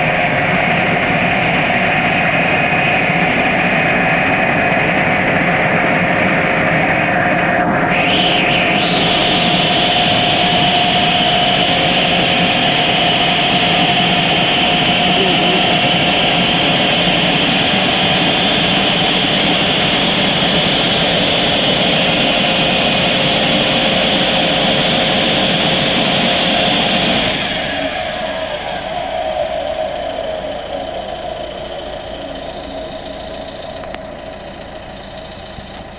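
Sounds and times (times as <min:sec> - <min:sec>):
air-dryer blowers rushing: 0:07.9 - 0:29.9.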